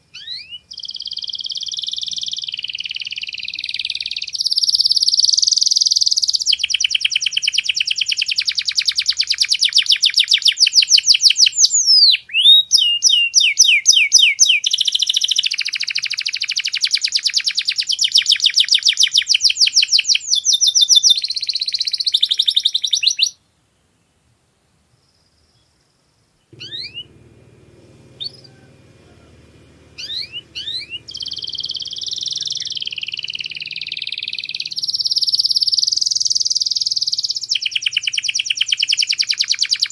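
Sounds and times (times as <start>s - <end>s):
canary singing: 0.0s - 23.4s, 26.5s - 39.9s
low hum: 26.5s - 37.4s.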